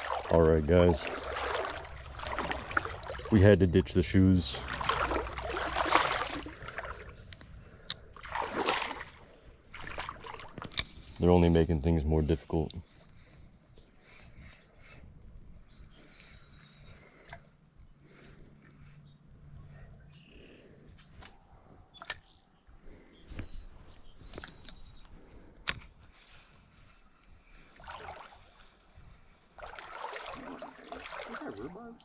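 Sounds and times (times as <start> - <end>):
water splashing: 0.0 - 7.2, 8.2 - 10.7, 27.8 - 28.7, 29.6 - 32.0
wading through shallow water: 0.0 - 11.2, 25.2 - 32.0
insect drone: 0.0 - 32.0.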